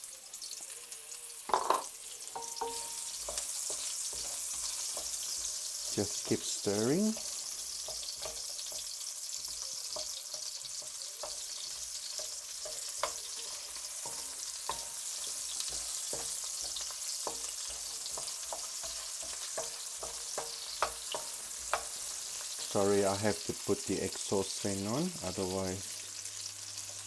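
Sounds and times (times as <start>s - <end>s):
onion sizzling in a pan: 0.0s - 27.0s
utensil tapping against pan: 1.5s - 22.6s.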